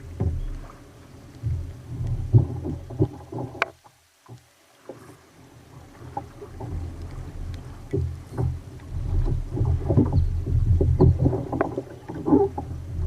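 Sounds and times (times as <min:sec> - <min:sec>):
water slapping against hull: 0:00.0 - 0:13.0
knocks on hull: 0:00.2 - 0:00.7, 0:07.9 - 0:12.6.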